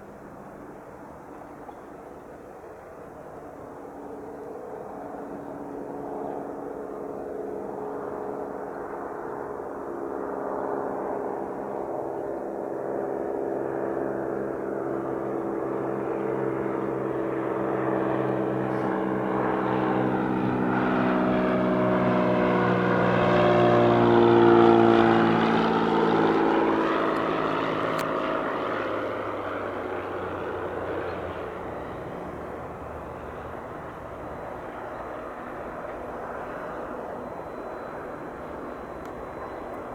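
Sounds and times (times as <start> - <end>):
propeller plane flying past: 0.0 - 39.9.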